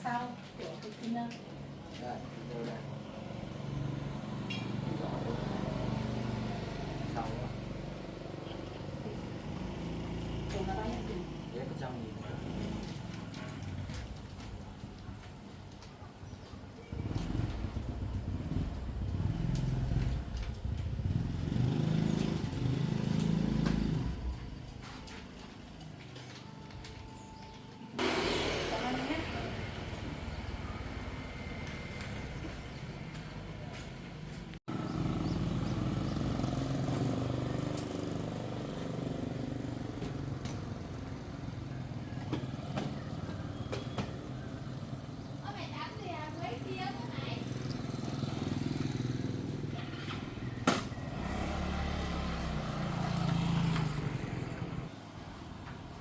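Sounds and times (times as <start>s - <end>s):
motorbike engine running: 16.9s - 24.7s, 28.0s - 33.6s, 34.7s - 54.9s.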